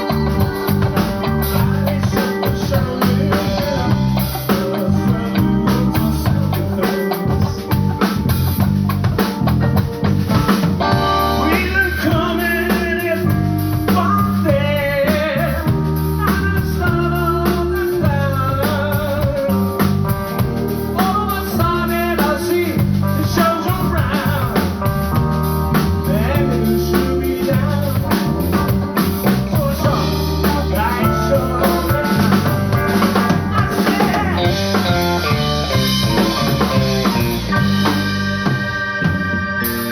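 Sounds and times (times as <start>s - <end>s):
live band playing: 0.0s - 39.9s
low bass line: 0.0s - 39.9s.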